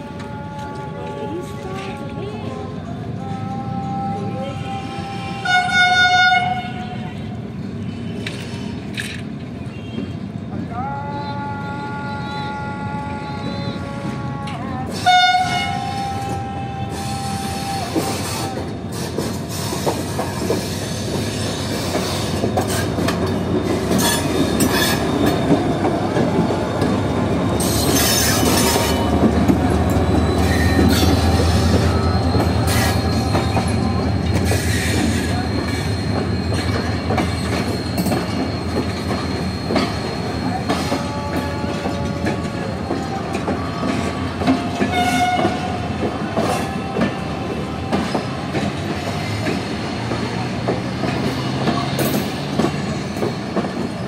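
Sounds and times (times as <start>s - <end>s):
train horn: 3.2s - 7.4s, 10.7s - 18.8s, 26.1s - 35.4s, 40.4s - 49.6s
locomotive engine rumble: 12.6s - 54.0s
high wheel squeal: 17.0s - 54.0s.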